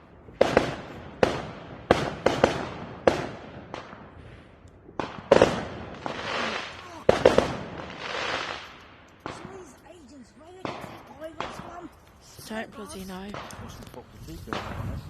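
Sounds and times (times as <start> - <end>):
fireworks bangs: 0.0 - 15.0
hissing crackle: 4.5 - 10.0.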